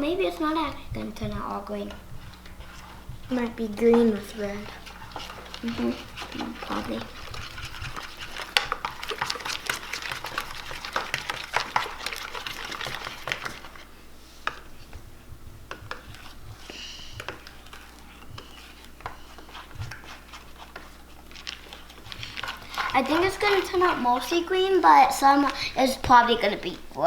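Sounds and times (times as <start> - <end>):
slime being stirred: 0.0 - 27.0.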